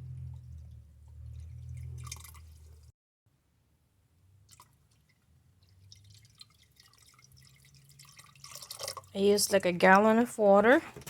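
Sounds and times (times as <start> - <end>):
water dripping: 0.0 - 2.9, 4.4 - 10.2
water pouring into plastic tank: 0.0 - 2.9, 4.4 - 9.9.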